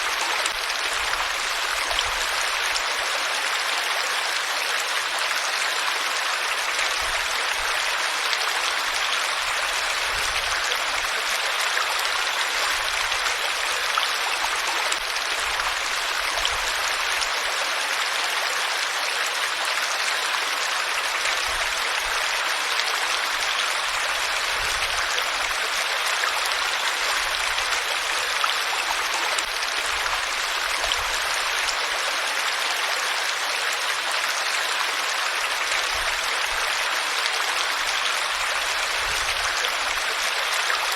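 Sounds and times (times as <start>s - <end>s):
water flowing: 0.0s - 40.9s.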